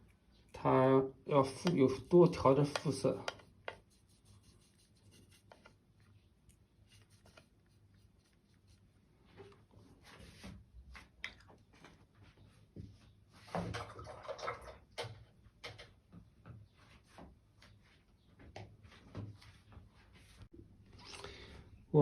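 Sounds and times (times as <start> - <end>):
paintbrush tapping and scraping: 1.3 - 12.2.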